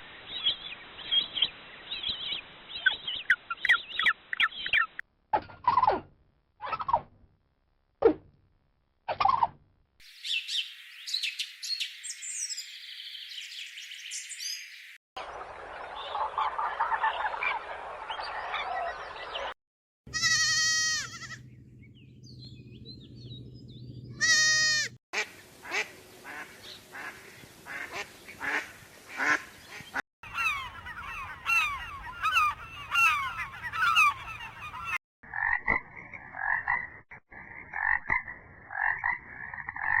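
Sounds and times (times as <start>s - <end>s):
loud pitched honking calls: 20.1s - 21.5s, 24.2s - 25.0s
rapid repeated chirping calls: 29.2s - 35.0s.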